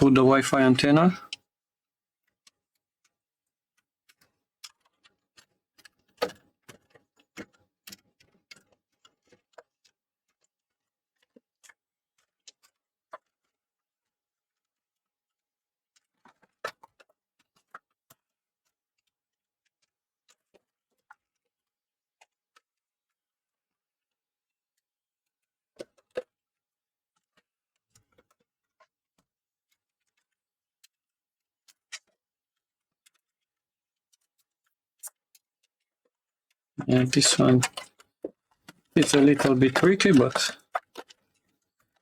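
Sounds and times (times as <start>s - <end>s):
clicks and taps of tools: 39.0s - 40.6s.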